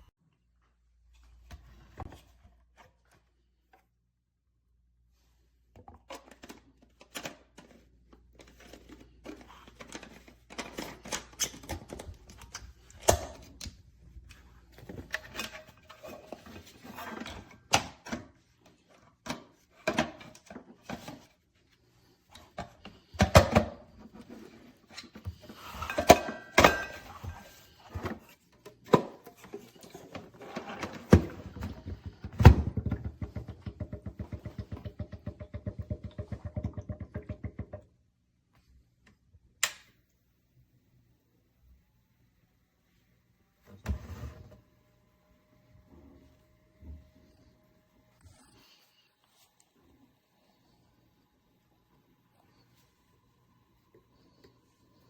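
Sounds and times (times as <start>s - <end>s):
hard objects knocking: 31.8s - 37.8s.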